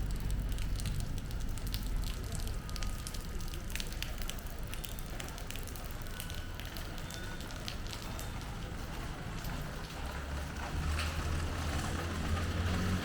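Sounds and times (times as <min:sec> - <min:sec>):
raindrops ticking: 0:00.0 - 0:13.0.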